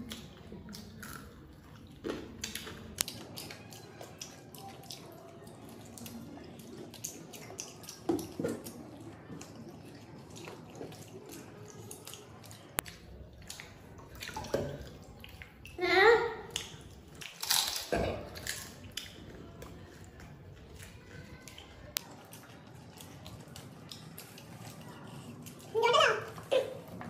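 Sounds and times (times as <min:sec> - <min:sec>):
wet chewing and lip smacking: 0:00.0 - 0:15.8, 0:16.5 - 0:27.0.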